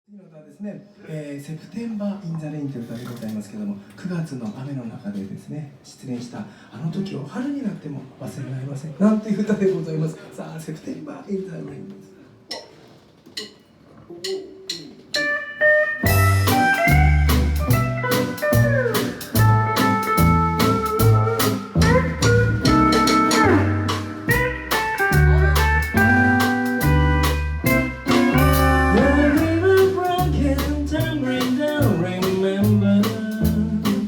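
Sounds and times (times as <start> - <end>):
drum kit in swing: 12.5 - 34.0
pedal steel guitar melody: 15.2 - 30.2
electric guitar: 15.2 - 34.0
walking bass: 16.0 - 34.0.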